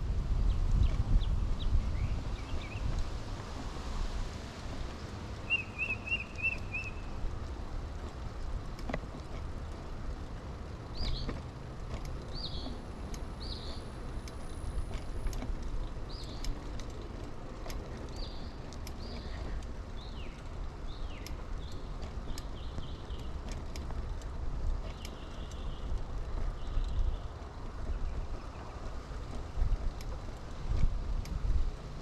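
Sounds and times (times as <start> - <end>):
tyres and wind rumbling: 0.0 - 32.0
birds chirping: 5.0 - 7.2, 10.8 - 11.5, 12.2 - 14.0, 15.8 - 16.9, 17.9 - 24.2, 24.8 - 29.0
faint clicks: 11.0 - 27.1.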